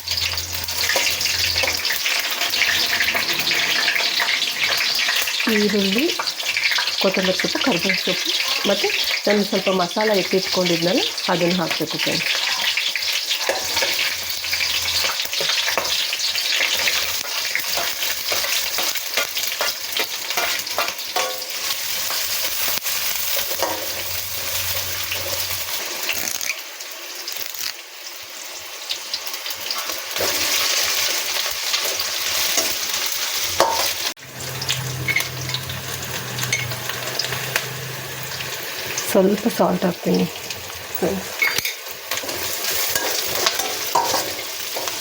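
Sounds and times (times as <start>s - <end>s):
food sizzling in hot oil: 0.0s - 45.0s
spatula scraping a pan: 0.2s - 5.4s, 12.2s - 26.4s, 41.4s - 45.0s.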